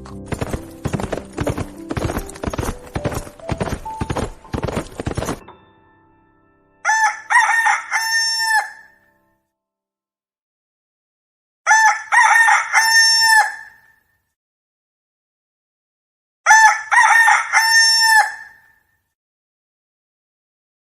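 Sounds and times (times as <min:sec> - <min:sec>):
rooster crowing: 0:06.8 - 0:09.0, 0:11.7 - 0:13.8, 0:16.5 - 0:18.6.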